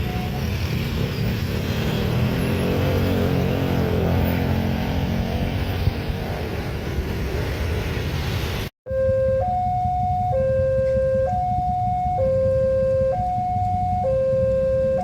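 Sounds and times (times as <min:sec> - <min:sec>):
rushing rumble: 0:00.0 - 0:08.7
level crossing two-tone alarm: 0:08.9 - 0:15.0.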